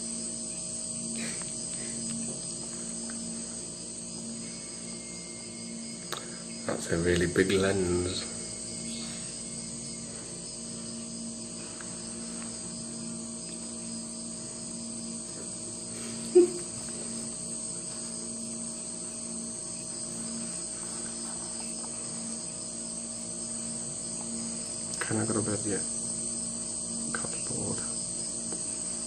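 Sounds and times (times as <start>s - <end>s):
high-pitched whine: 0.0s - 29.0s
low hum: 0.0s - 29.0s
loud pitched chirp: 8.0s - 10.2s.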